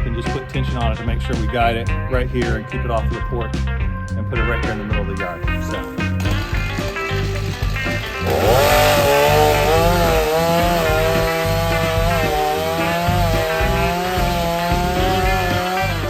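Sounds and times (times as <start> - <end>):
background music with low beat: 0.0 - 16.0
chainsaw cutting wood: 5.7 - 16.0.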